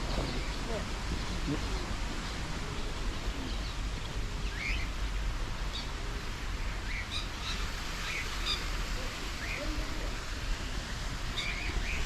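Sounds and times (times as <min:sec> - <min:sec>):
birds chirping: 0:00.0 - 0:06.0, 0:10.9 - 0:12.0.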